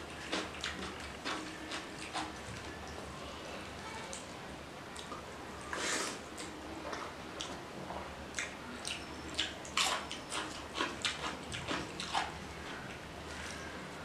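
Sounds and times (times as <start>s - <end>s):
wet chewing and lip-smacking: 8.3s - 12.4s.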